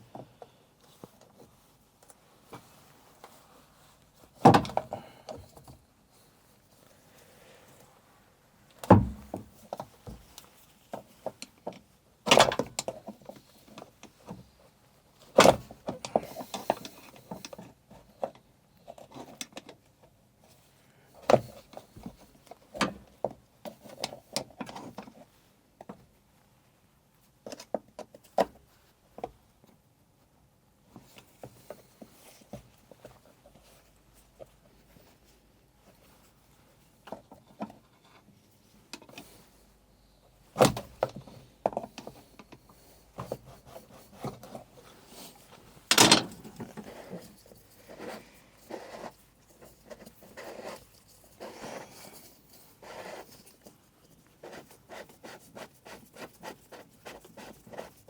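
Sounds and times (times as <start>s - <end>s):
metal parts knocking and clunking: 45.9s - 46.9s.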